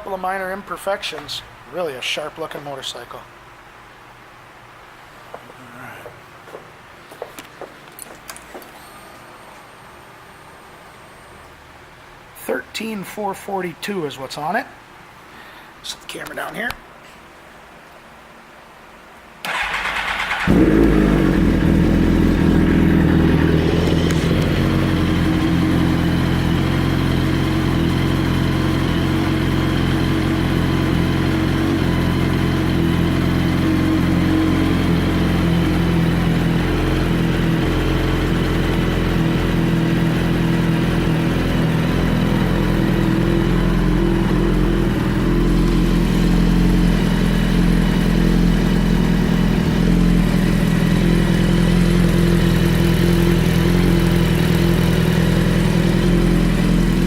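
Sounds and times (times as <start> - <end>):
motorcycle starter cranking: 19.4 - 24.7
motorcycle engine idling: 19.5 - 57.0.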